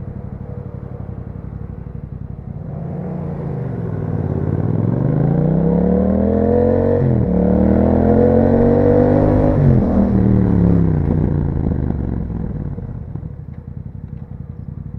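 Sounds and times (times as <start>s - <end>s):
motorcycle engine accelerating: 0.0s - 14.9s.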